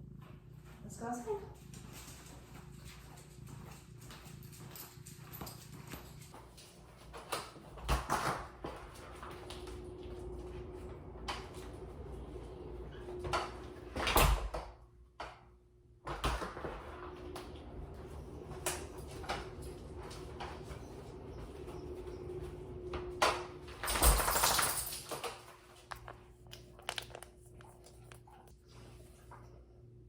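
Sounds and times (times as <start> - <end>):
sliding door running: 7.6 - 14.6, 16.1 - 25.3.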